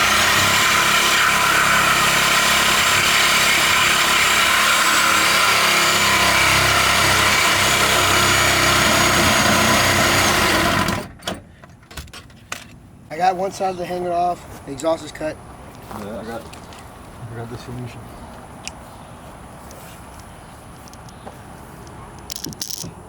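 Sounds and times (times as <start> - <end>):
electric saw cutting steel pipe: 0.0 - 11.1.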